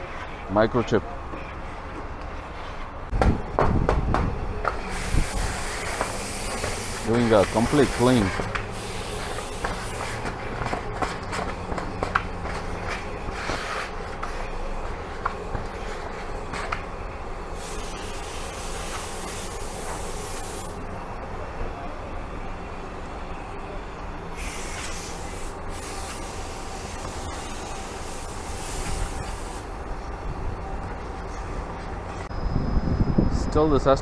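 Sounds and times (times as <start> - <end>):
car wash equipment running: 3.1 - 32.4
hiss: 4.8 - 10.8, 17.5 - 20.9, 24.3 - 29.8.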